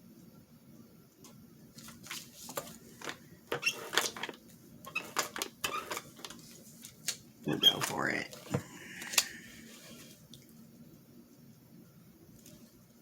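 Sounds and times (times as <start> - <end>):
paper rustling and crinkling: 1.7 - 3.2, 3.8 - 10.2.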